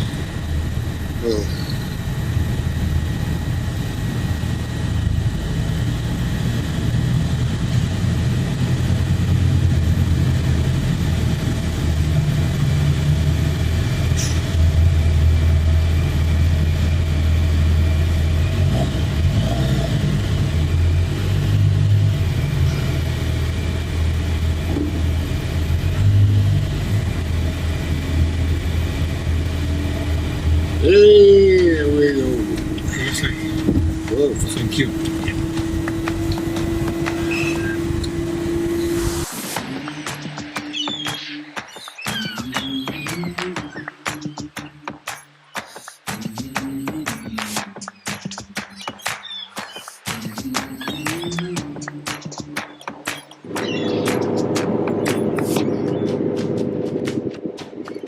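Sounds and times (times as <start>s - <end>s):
pickup truck engine rumbling: 0.0s - 40.3s, 53.4s - 58.0s.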